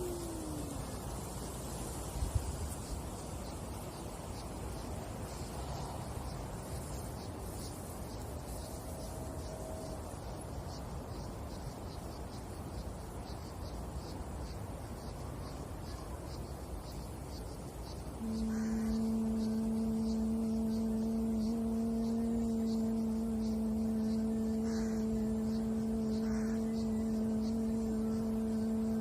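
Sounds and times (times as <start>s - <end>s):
woman singing a held note: 0.0s - 1.0s, 18.2s - 29.0s.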